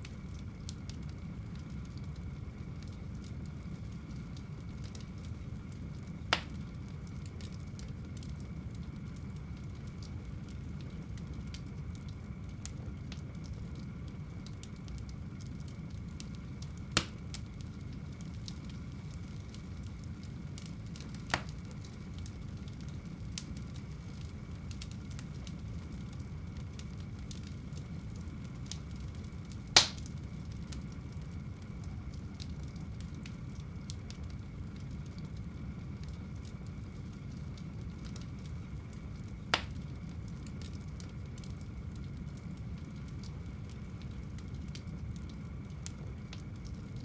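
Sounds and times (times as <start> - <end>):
faint fire crackles: 0.0 - 47.0
flames rushing: 0.0 - 47.0
sharp pops of fire: 6.0 - 8.4, 15.7 - 31.2, 37.6 - 41.7.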